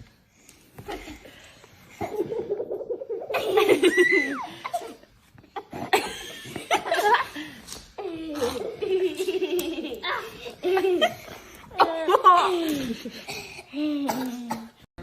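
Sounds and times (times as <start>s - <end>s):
person laughing hard: 2.1s - 5.0s.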